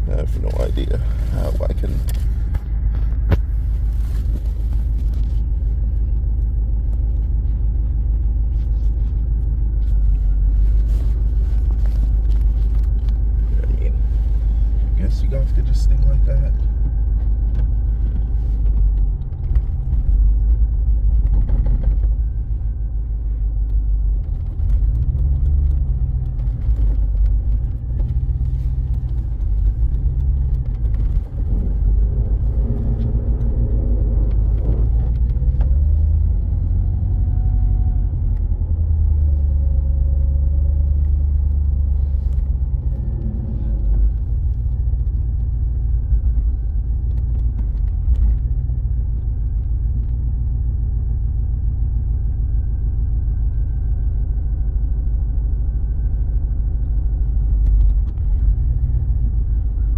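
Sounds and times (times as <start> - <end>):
car engine revving: 8.8 - 49.6.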